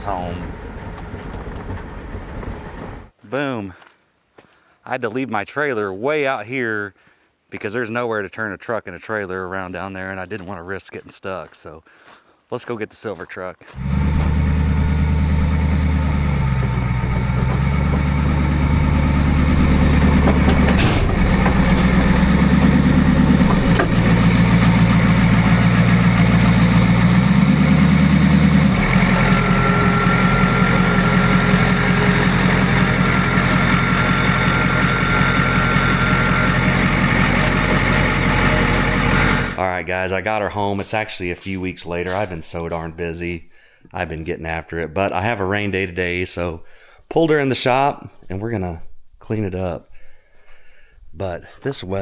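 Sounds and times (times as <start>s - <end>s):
truck engine running: 0.0s - 3.1s, 13.8s - 39.6s.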